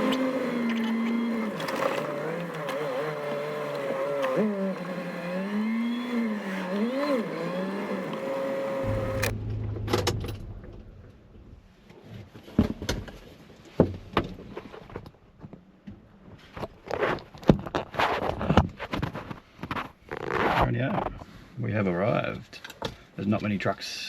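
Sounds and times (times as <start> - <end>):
car engine running: 0.0 - 11.8
sharp clicks and knocks: 8.8 - 11.8.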